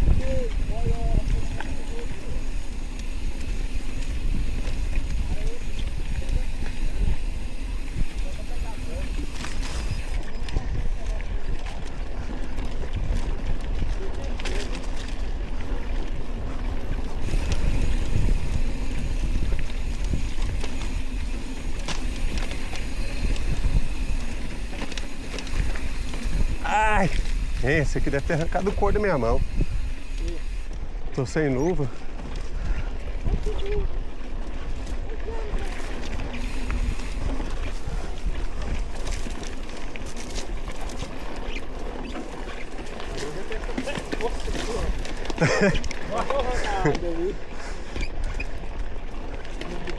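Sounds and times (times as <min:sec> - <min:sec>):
wind rumble on microphone: 0:00.0 - 0:31.1, 0:32.0 - 0:41.6
light ticks and rattles: 0:00.2 - 0:32.5.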